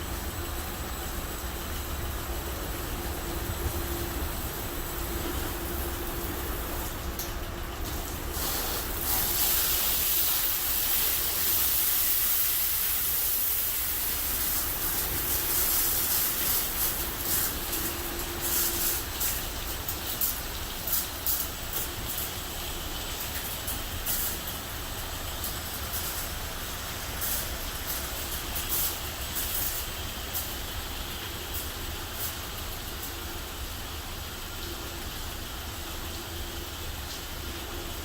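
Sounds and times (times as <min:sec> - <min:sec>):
car wash machine hum: 0:00.0 - 0:38.0
loud hiss: 0:08.2 - 0:32.6.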